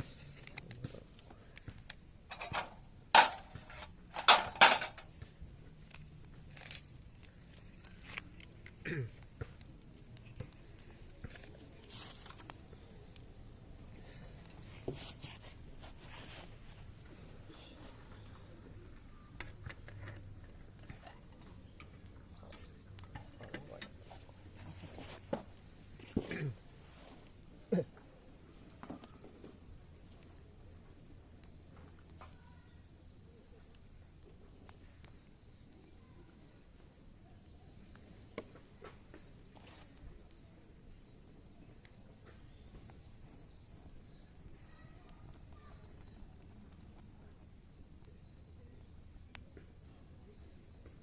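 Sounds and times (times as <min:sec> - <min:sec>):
wood fire crackling and popping: 0:00.0 - 0:51.0
metal cookware clanking: 0:04.2 - 0:05.0.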